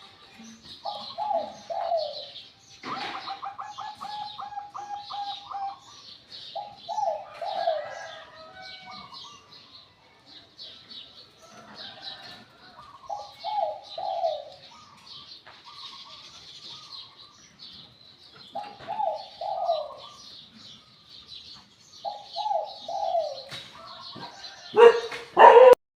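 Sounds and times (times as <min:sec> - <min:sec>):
small birds chirping: 0:00.0 - 0:25.7
dove cooing: 0:00.4 - 0:09.5, 0:11.4 - 0:15.1, 0:18.4 - 0:20.8, 0:22.0 - 0:25.8.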